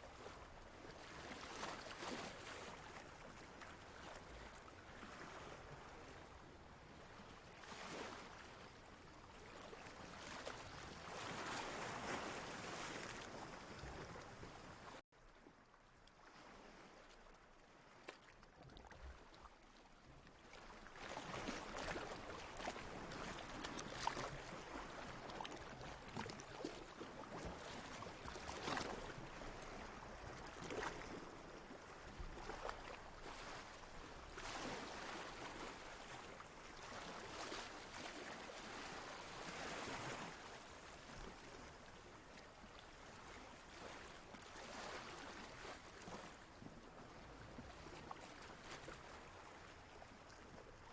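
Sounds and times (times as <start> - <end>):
water lapping and sloshing: 0.0 - 50.9.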